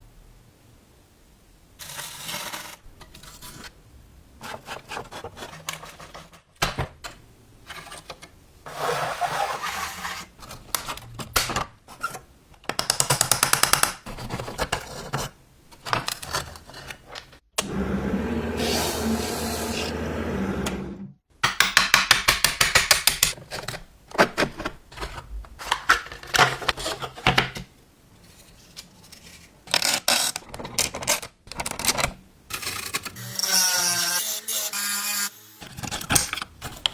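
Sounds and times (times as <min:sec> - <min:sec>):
scraping and rubbing: 0:04.4 - 0:06.4, 0:17.7 - 0:21.0
small power tool running: 0:17.6 - 0:21.1.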